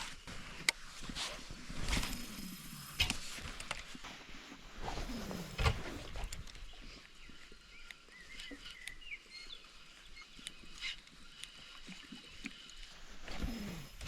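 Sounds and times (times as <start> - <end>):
small birds chirping: 5.0 - 14.0.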